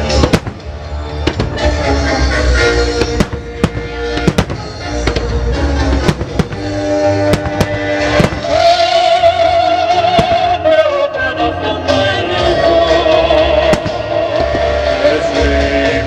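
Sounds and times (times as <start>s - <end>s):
fireworks bangs: 0.0s - 10.8s, 13.4s - 15.0s
show music over loudspeakers: 0.0s - 16.0s.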